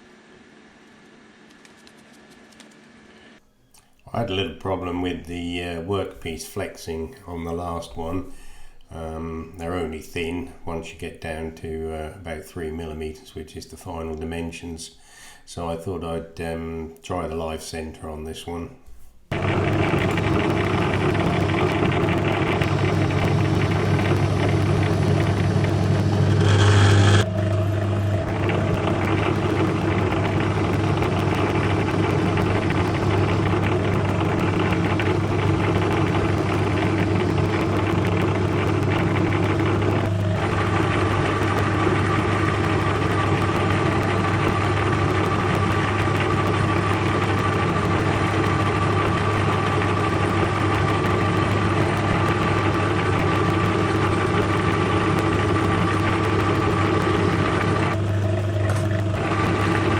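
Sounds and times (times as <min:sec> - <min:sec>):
lathe cutting metal: 0:19.3 - 0:59.9
lathe humming: 0:19.3 - 0:59.9
thin steady whine: 0:19.3 - 0:59.9.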